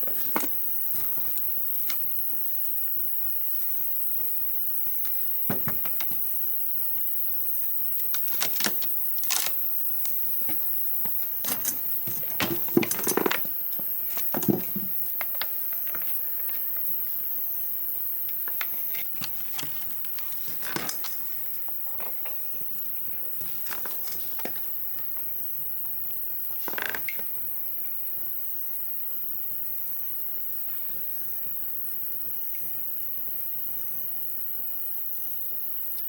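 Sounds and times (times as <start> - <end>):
faint hiss: 0.0 - 36.0.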